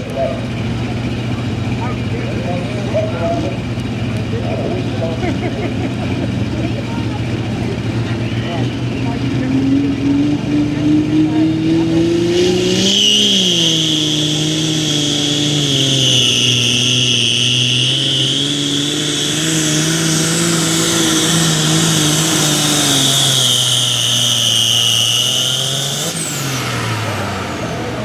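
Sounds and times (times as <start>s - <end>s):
diesel tractor engine under load: 0.0s - 28.0s
high turbo whistle: 9.8s - 28.0s.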